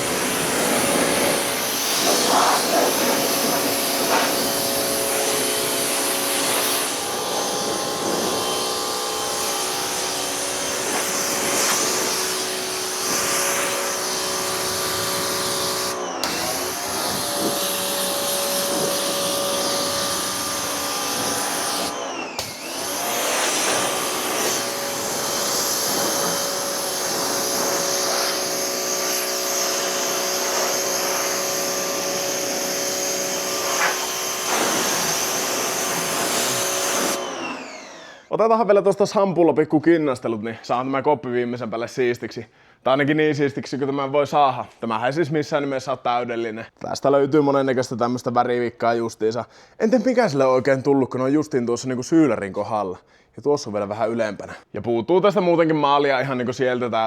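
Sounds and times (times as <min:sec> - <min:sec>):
water spray hissing: 0:00.0 - 0:21.9, 0:23.1 - 0:37.2
pressure washer motor whine: 0:00.0 - 0:38.3.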